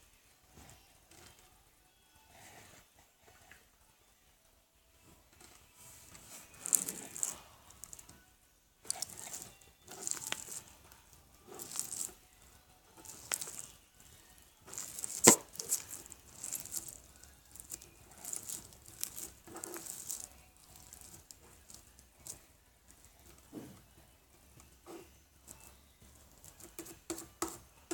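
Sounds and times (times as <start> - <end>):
slime squelching by hand: 6.6 - 8.1, 8.9 - 10.8, 11.4 - 12.2, 13.0 - 13.8, 14.7 - 22.4.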